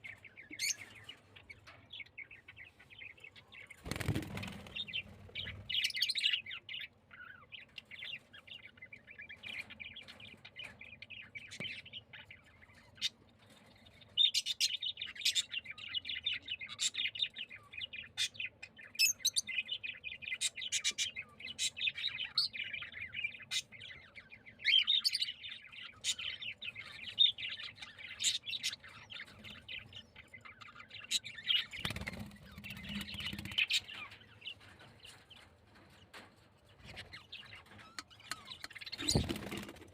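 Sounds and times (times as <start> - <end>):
cage birds chirping: 0.0 - 39.9.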